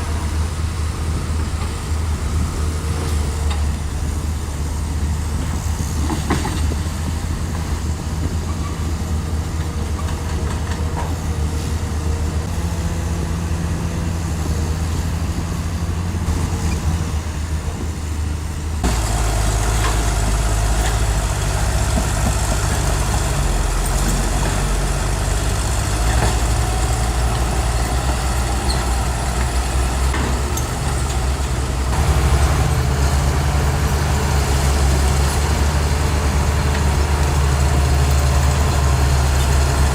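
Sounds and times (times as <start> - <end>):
diesel machinery engine running: 0.0 - 39.9.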